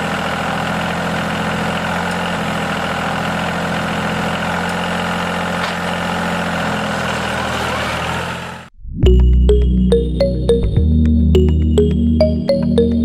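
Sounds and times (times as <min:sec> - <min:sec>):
motor running steadily: 0:00.0 - 0:08.7
music: 0:09.0 - 0:13.0.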